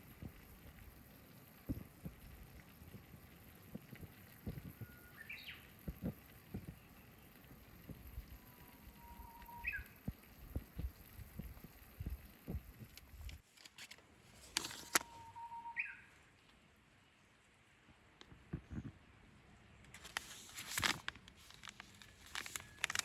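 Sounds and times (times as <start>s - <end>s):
bush warbler singing: 4.5s - 7.4s, 8.2s - 10.6s, 15.2s - 16.0s.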